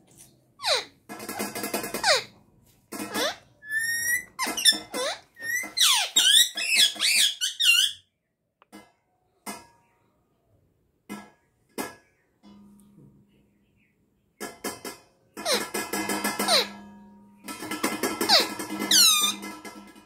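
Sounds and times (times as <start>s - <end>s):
parrot chirps: 0.6s - 0.9s, 3.1s - 8.0s, 18.3s - 19.4s
parrot whistles and squawks: 0.6s - 0.9s, 3.1s - 8.0s, 18.3s - 19.5s.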